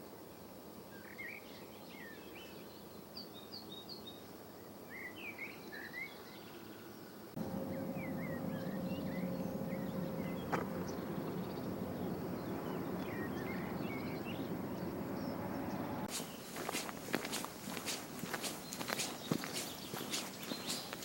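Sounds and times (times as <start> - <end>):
small birds chirping: 1.0 - 21.0
low hum with held tone: 7.4 - 16.1.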